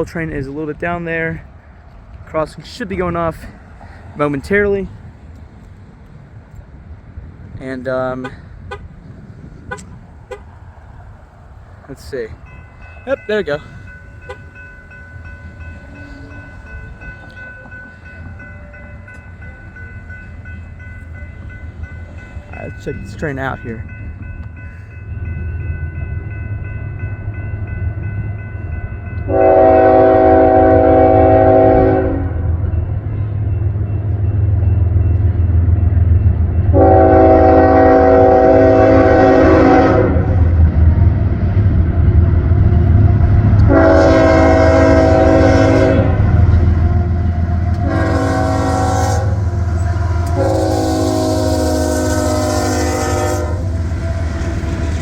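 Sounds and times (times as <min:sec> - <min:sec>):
locomotive horn blasts: 0:08.2 - 0:09.0, 0:09.6 - 0:10.5, 0:29.2 - 0:32.6, 0:36.7 - 0:40.6, 0:43.1 - 0:55.0
crossing bell ringing: 0:11.9 - 0:40.6, 0:41.4 - 0:55.0
diesel engines rumbling: 0:29.3 - 0:55.0.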